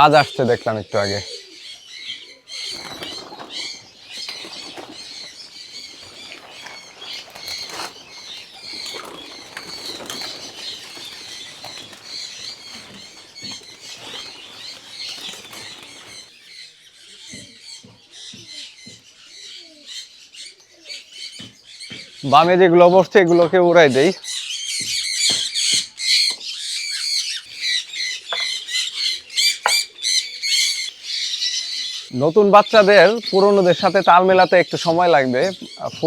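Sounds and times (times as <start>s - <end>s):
birds chirping: 0.0s - 36.0s
pigeon wings flapping: 2.6s - 16.3s.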